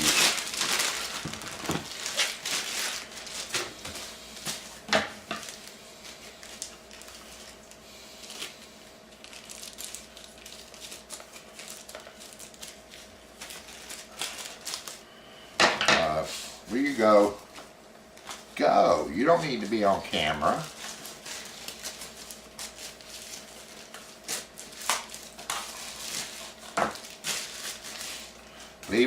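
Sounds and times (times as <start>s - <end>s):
packaging rustling: 0.0s - 4.8s, 5.4s - 15.0s, 20.2s - 29.0s
faint steady hum: 0.0s - 29.0s.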